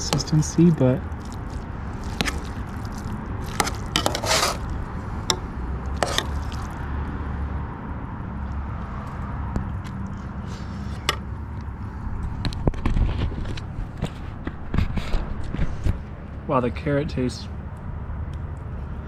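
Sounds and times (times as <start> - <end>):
spoon scraping in a pot: 2.0 - 6.8.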